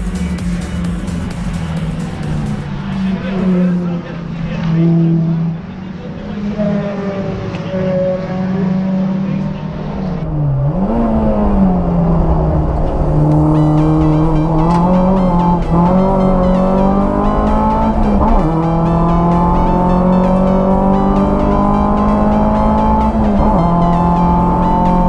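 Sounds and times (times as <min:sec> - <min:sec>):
dance music with steady beat: 0:00.0 - 0:03.6, 0:13.4 - 0:25.0
car engine accelerating hard: 0:00.0 - 0:25.0.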